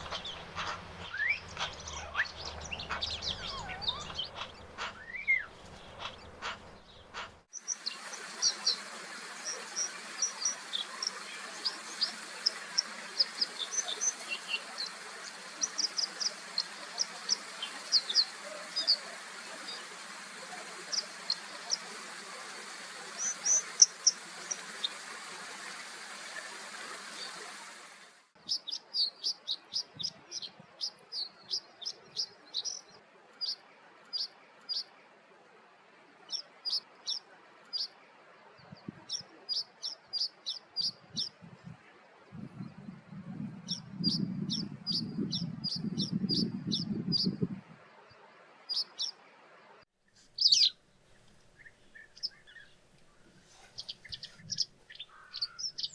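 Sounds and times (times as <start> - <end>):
bird calling sharp notes: 0.0 - 7.5
steady hiss: 0.0 - 28.4.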